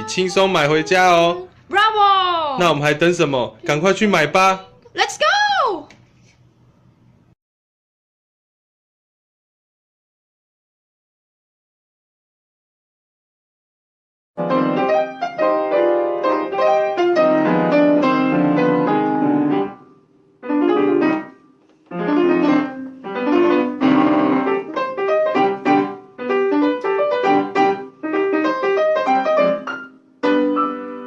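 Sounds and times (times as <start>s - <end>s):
piano chords and melody: 14.4s - 31.0s.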